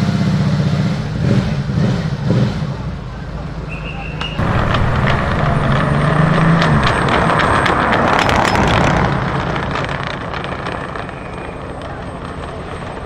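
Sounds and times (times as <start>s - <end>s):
car engine accelerating past: 4.4s - 11.0s.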